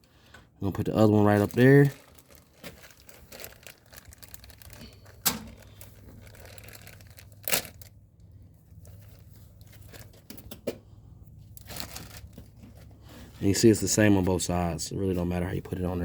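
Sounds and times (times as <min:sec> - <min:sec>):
hands rustling and crinkling parts: 0:00.0 - 0:16.0.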